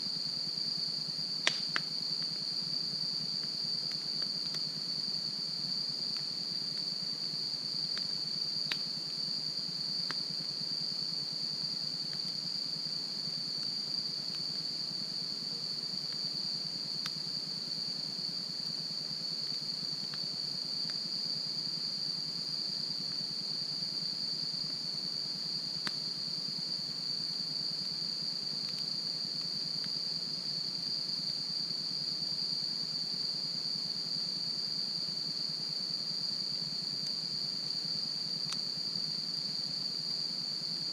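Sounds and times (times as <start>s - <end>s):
insect chorus trilling: 0.0s - 40.9s
campfire pops and crackles: 1.4s - 2.4s, 3.4s - 4.8s, 7.8s - 8.9s, 17.0s - 17.2s.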